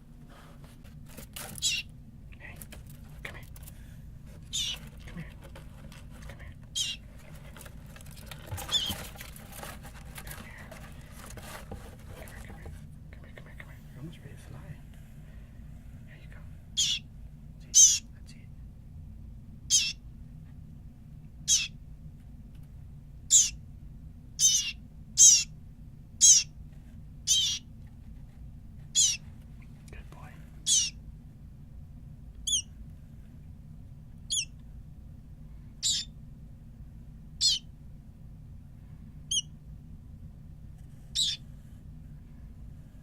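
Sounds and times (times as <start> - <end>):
baby bird cheeping: 1.6 - 1.9, 4.4 - 4.9, 6.7 - 7.1, 8.6 - 9.0, 16.7 - 18.1, 19.6 - 20.0, 21.4 - 21.8, 23.3 - 23.6, 24.4 - 25.6, 26.2 - 26.6, 27.2 - 27.7, 28.9 - 29.2, 30.6 - 31.0, 32.4 - 32.7, 34.2 - 34.6, 35.8 - 36.2, 37.4 - 37.7, 39.3 - 39.6, 41.1 - 41.4
faint tapping and scratching: 2.3 - 15.2.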